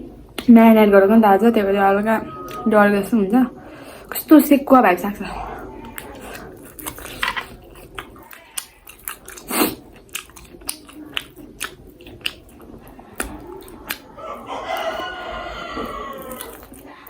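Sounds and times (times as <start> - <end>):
chewing crunchy chicken: 5.3 - 17.0.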